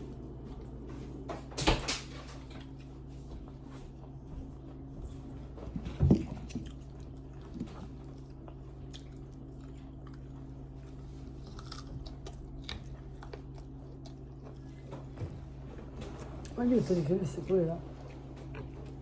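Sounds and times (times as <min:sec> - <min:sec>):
steady low hum: 0:00.0 - 0:19.0
person chewing: 0:06.6 - 0:14.9.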